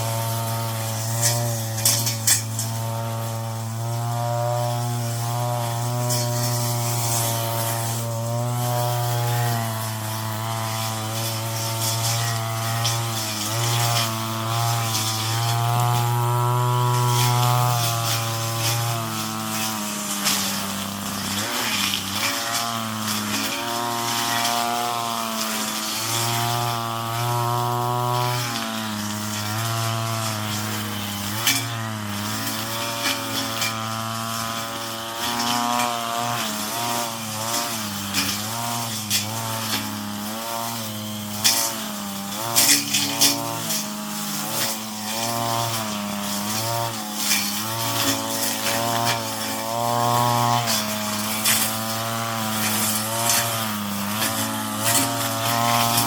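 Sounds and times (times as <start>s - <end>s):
brush cutter engine: 0.0s - 56.0s
cutting head cracking stalks: 40.5s - 56.0s.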